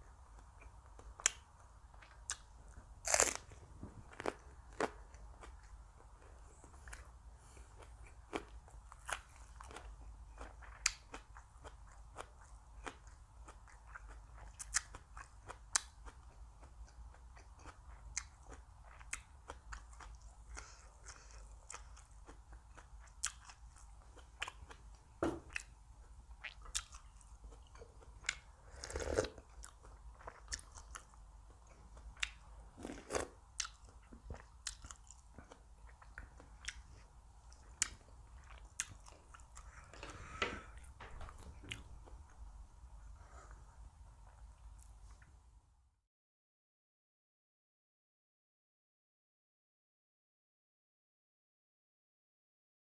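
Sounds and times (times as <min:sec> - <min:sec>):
person chewing and crunching: 0:00.3 - 0:42.4.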